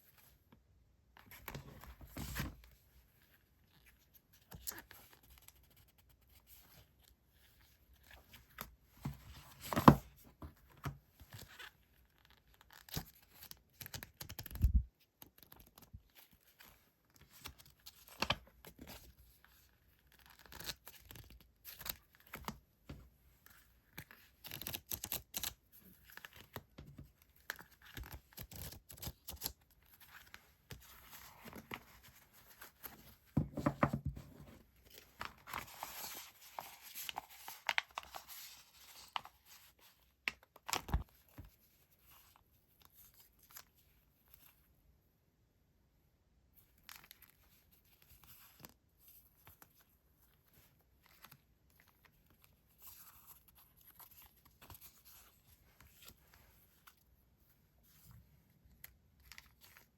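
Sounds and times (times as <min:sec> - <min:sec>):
paper rustling and crinkling: 0:23.4 - 0:42.4.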